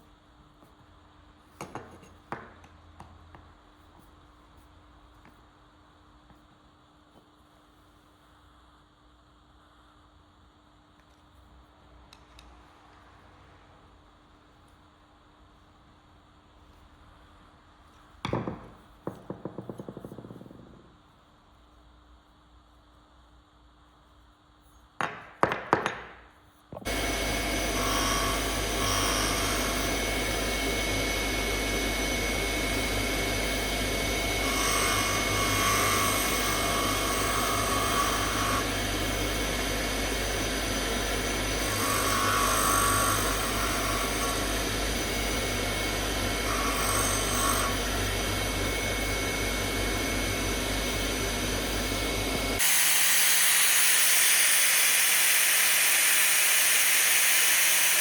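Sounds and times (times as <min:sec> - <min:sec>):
knocks: 0:18.2 - 0:20.8
electric power tool motor: 0:26.9 - 0:58.0.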